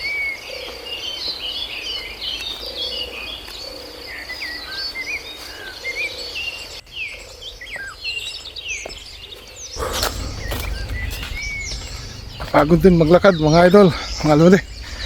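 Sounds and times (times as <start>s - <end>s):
wild birds singing: 0.0s - 15.0s
low rushing noise: 9.8s - 15.0s.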